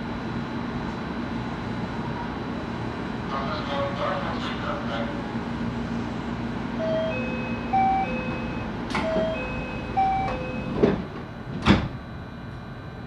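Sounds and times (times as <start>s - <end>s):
train door chime: 6.8s - 11.0s
train doors sliding shut: 7.3s - 12.0s.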